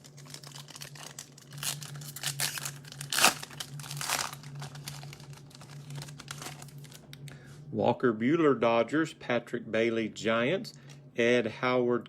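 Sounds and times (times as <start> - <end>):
sharp wrapper crackle: 0.0 - 7.4
wrappers and cards rustling: 0.0 - 7.5.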